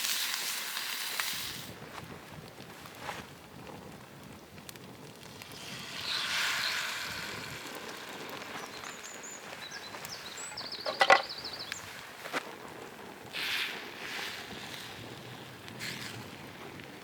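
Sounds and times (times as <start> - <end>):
gust of wind: 5.0 - 12.2
small bird trilling: 9.6 - 11.7.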